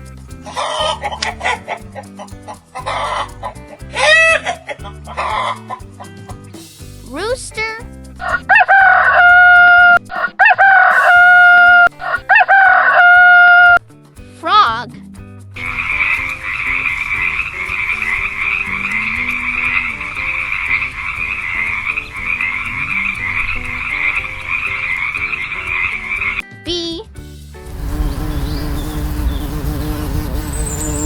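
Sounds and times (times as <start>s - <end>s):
rooster crowing: 8.2s - 13.8s
frogs croaking: 15.8s - 26.2s.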